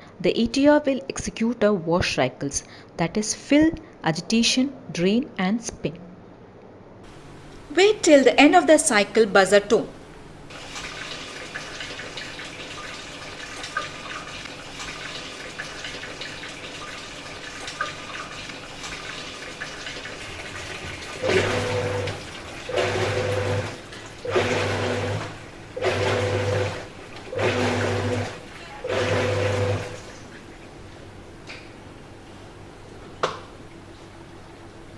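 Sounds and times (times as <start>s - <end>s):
washing machine agitating: 10.3s - 31.4s
water rushing into washer tub: 10.4s - 30.8s.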